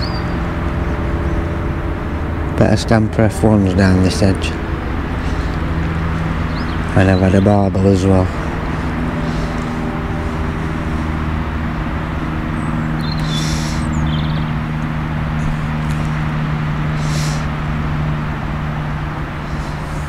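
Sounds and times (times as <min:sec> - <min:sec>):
constant rushing noise: 0:00.0 - 0:20.0
low mechanical hum: 0:00.0 - 0:20.0
faint high hisses: 0:13.2 - 0:14.0, 0:17.0 - 0:17.5.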